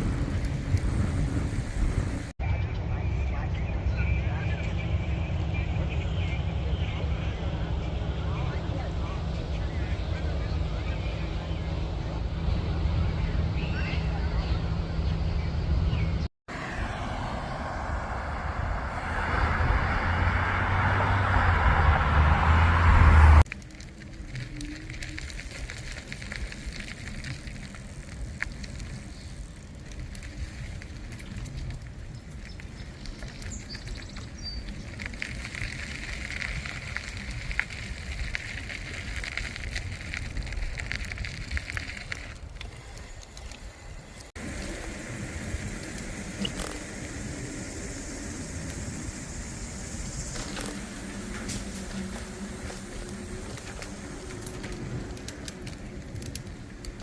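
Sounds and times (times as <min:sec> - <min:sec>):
bicycle rolling road noise: 0:00.0 - 0:57.0.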